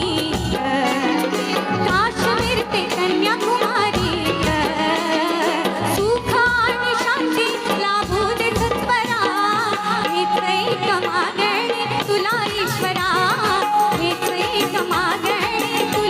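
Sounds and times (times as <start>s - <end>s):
steady drum beats: 0.0s - 16.0s.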